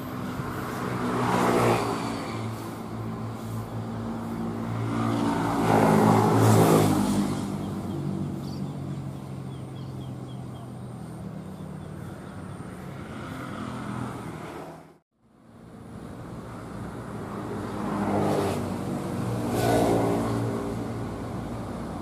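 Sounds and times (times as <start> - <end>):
wheels rumbling on rails: 0.0 - 14.7.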